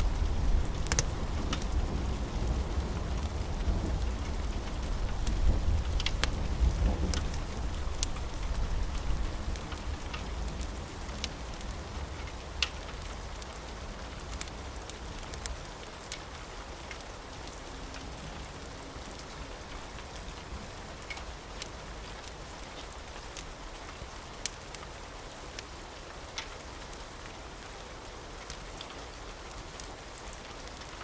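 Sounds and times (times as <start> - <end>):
low thunder rumble: 0.0 - 11.0
steady rain: 0.0 - 31.0
sharp drip ticks: 0.8 - 1.9.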